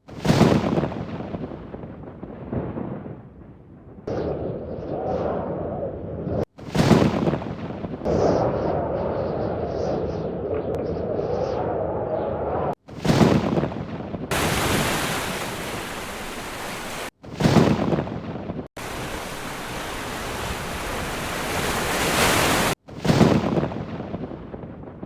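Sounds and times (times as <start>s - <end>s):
thunder: 0.2s - 5.6s
heavy rain pouring: 14.3s - 17.1s, 18.8s - 22.8s.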